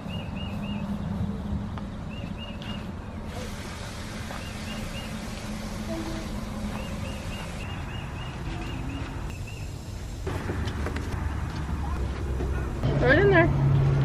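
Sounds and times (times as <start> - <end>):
bird chirping: 0.0 - 3.2, 4.2 - 9.8
low outdoor rumble: 0.0 - 14.0.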